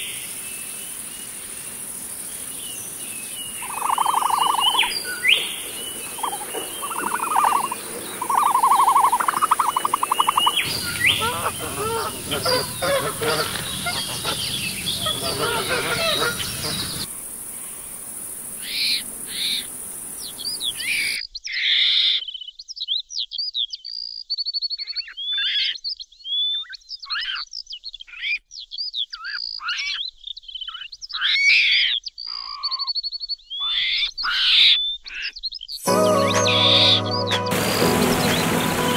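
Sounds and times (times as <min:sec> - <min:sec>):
birds chirping and trilling: 0:00.0 - 0:18.0, 0:18.6 - 0:35.8, 0:36.4 - 0:38.9
steady hiss: 0:00.0 - 0:21.2, 0:37.5 - 0:38.9.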